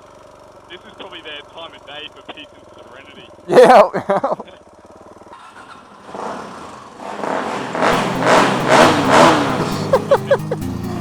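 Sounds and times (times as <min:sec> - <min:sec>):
dirt bike engine revving: 0:04.5 - 0:11.0.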